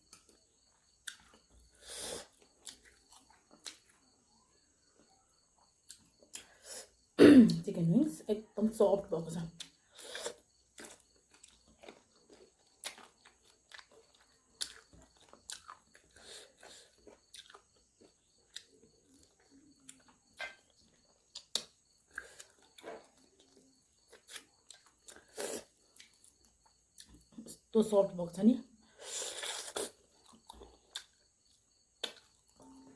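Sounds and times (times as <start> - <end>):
person chewing: 0.1 - 4.2, 9.6 - 27.3, 29.0 - 32.6
wet mouth clicks and smacks: 21.4 - 22.2, 32.0 - 32.3.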